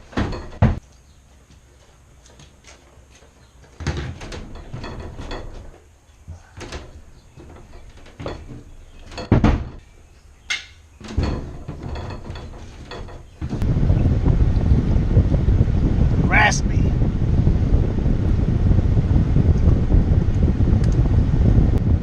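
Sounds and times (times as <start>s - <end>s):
knocks and clunks: 0.0s - 0.8s, 2.2s - 13.9s
low thuds: 0.0s - 0.8s, 3.8s - 22.0s.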